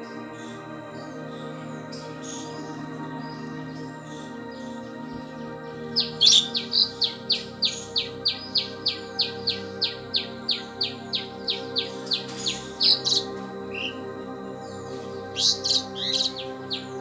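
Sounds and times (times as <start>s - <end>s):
soft background music: 0.0s - 17.0s
squirrel chirping: 6.0s - 14.0s, 14.9s - 17.0s.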